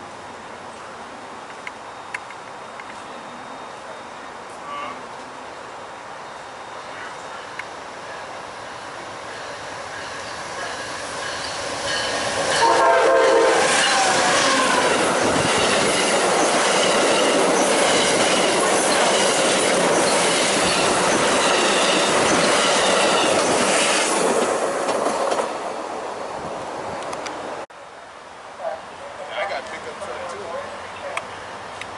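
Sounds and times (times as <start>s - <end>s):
train horn blast: 4.6s - 5.2s, 12.5s - 14.9s
train wheels on rails: 6.7s - 27.6s.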